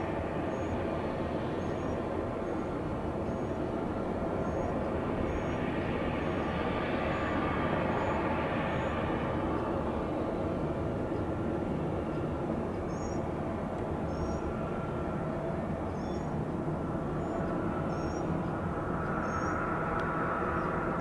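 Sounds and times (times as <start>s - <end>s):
jet airliner engines passing: 0.1s - 21.0s
faint high chirp: 17.2s - 18.3s.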